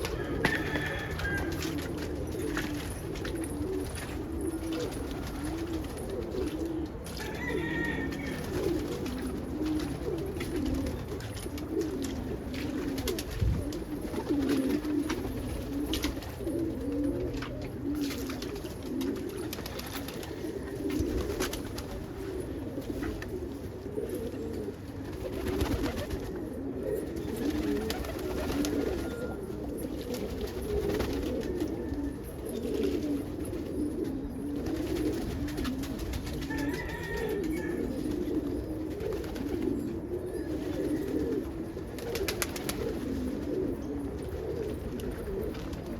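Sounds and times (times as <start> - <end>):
pigeons cooing: 0.0 - 45.9.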